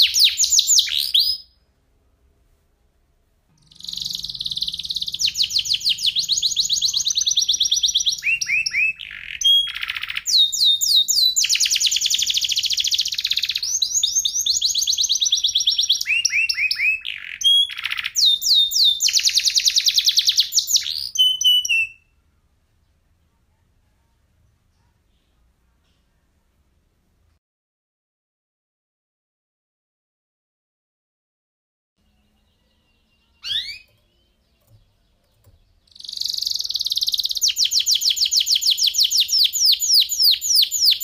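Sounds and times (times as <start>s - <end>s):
canary singing trills: 0.0s - 1.6s, 3.5s - 22.2s, 32.0s - 41.0s.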